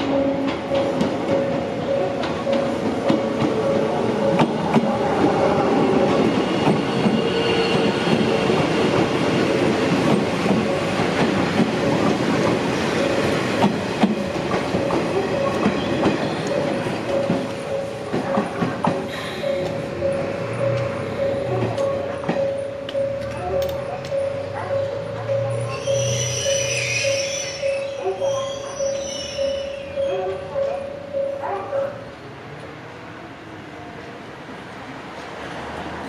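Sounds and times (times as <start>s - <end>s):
scattered clicks and knocks: 0.0s - 5.0s, 10.0s - 25.0s.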